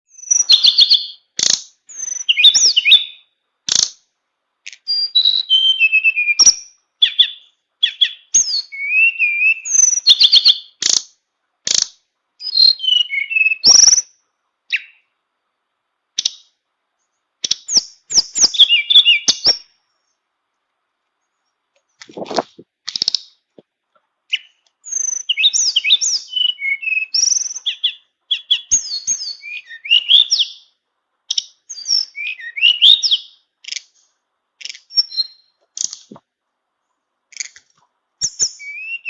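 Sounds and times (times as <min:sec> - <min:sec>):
songbird whistling song: 0:00.1 - 0:04.0, 0:04.7 - 0:11.0, 0:11.7 - 0:15.1, 0:16.2 - 0:16.6, 0:17.4 - 0:20.1, 0:24.3 - 0:36.2, 0:38.2 - 0:39.0
sharp clicks: 0:10.8 - 0:12.0, 0:22.0 - 0:23.3, 0:35.7 - 0:36.2.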